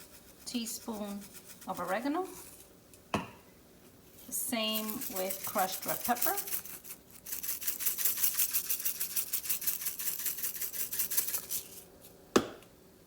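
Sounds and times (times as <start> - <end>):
spice shaker rattling: 0.0 - 2.6, 4.5 - 11.9.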